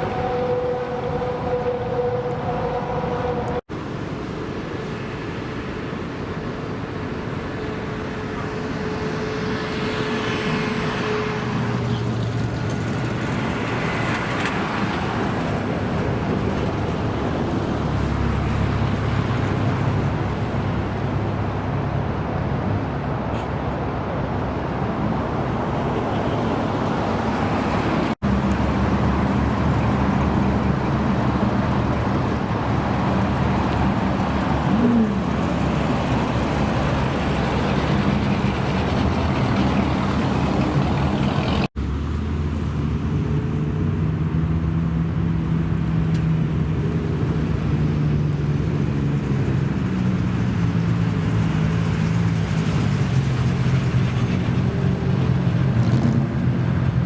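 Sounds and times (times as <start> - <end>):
car engines idling: 23.0 - 41.8.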